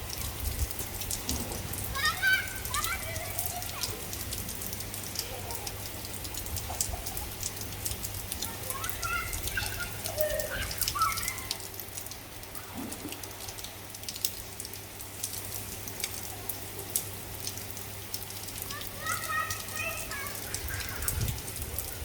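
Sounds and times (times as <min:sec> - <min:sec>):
rain pattering: 0:00.0 - 0:22.0
faint children's voices: 0:01.7 - 0:13.9, 0:18.5 - 0:22.0.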